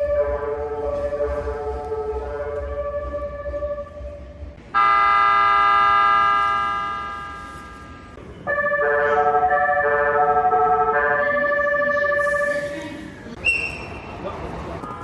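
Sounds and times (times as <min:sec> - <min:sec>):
train music horn tune: 0:00.0 - 0:12.6
train horn chord: 0:04.8 - 0:09.5.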